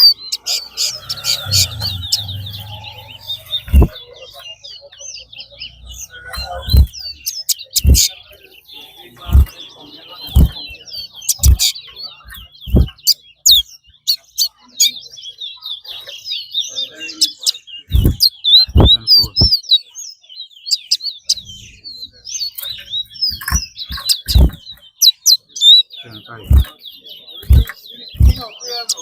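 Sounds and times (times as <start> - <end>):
songbirds chirping and trilling: 0.0 - 29.0
short low thuds: 3.6 - 4.0, 6.6 - 6.9, 7.8 - 8.1, 9.3 - 9.5, 10.3 - 10.7, 11.4 - 11.6, 12.6 - 13.0, 17.9 - 19.5, 23.9 - 24.6, 26.4 - 26.7, 27.4 - 28.4.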